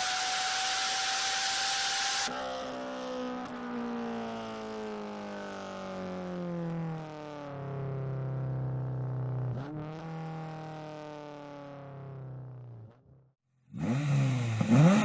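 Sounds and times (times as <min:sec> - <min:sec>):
car engine revving: 0:13.7 - 0:15.0.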